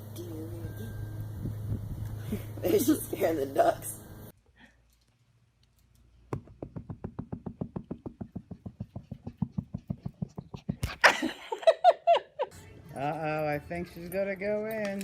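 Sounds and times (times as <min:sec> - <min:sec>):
rapid even tapping: 0:06.3 - 0:11.0.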